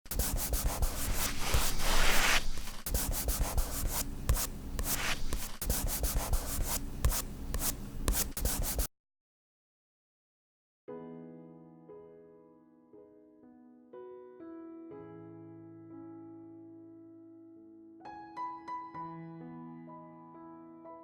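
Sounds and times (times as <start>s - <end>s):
chalk scratching on paper: 0.1s - 8.9s.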